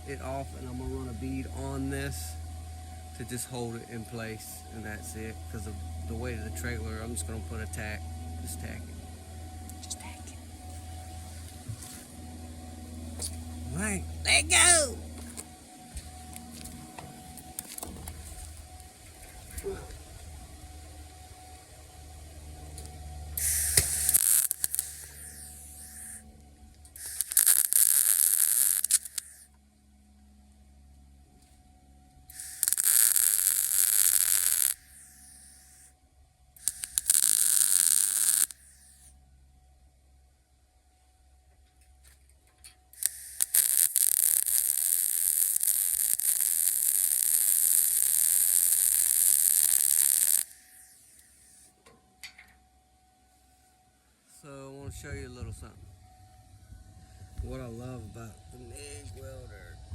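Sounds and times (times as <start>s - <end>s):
low hum: 0.0s - 59.9s
crackling welding arc: 23.4s - 26.2s, 26.9s - 29.5s, 32.3s - 35.9s, 36.6s - 39.1s, 43.0s - 51.7s.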